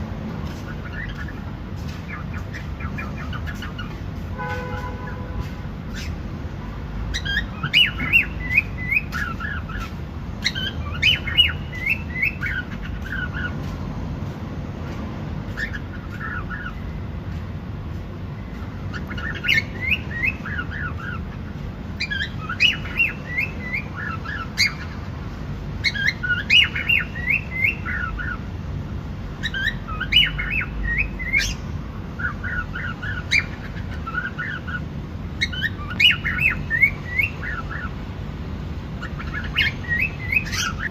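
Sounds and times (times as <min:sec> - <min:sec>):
cockatiel chirping: 0:05.9 - 0:06.2, 0:07.1 - 0:13.5, 0:15.5 - 0:16.8, 0:18.7 - 0:21.3, 0:22.0 - 0:25.0, 0:25.8 - 0:28.4, 0:29.4 - 0:31.6, 0:32.2 - 0:34.8, 0:35.4 - 0:37.9, 0:39.0 - 0:40.9.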